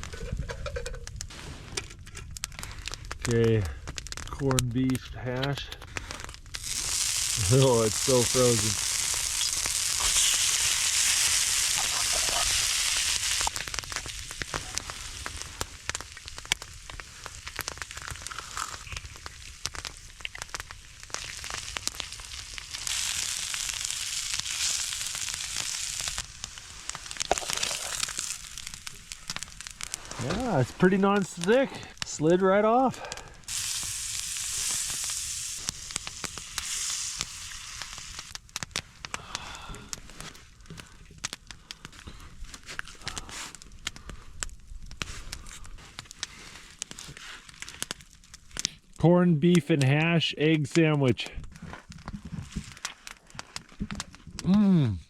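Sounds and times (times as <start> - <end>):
sharp pops: 0.0 - 54.7
food sizzling on a griddle: 6.1 - 40.2, 44.9 - 48.2.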